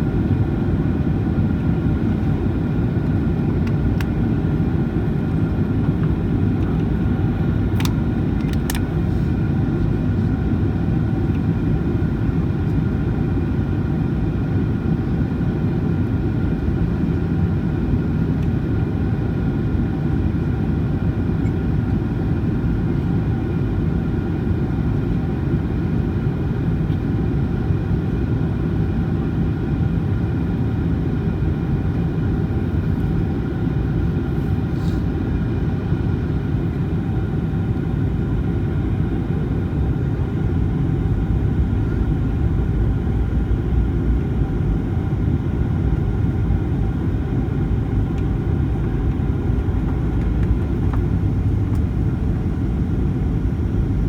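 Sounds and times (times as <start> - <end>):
airplane cabin airflow rumble: 0.0 - 54.0
jet engine whine: 0.0 - 54.0.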